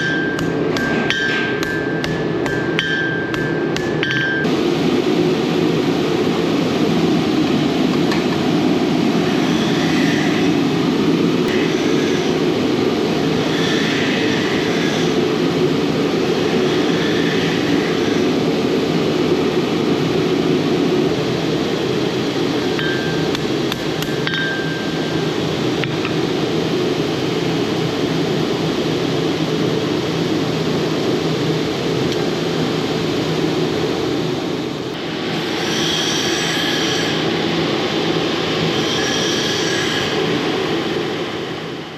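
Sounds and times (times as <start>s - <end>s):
hammer ringing on metal: 0.0s - 4.5s
steady low running noise: 0.6s - 24.1s.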